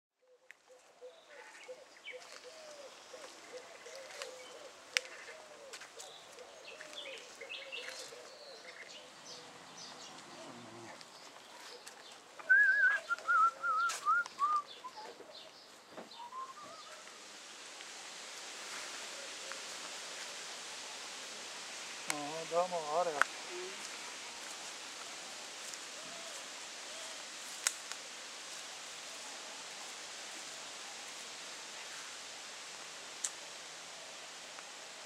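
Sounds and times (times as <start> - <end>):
birds singing and calling: 0.6 - 17.1.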